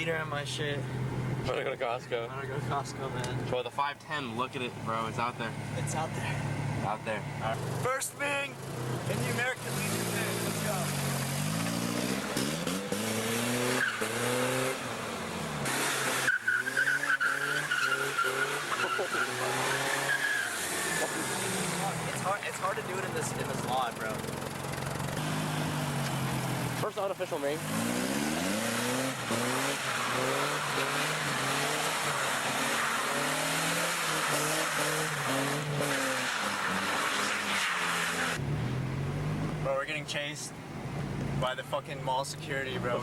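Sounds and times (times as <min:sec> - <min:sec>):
car engine revving: 0:04.5 - 0:43.0
tyres squealing: 0:13.6 - 0:14.7, 0:15.8 - 0:38.4.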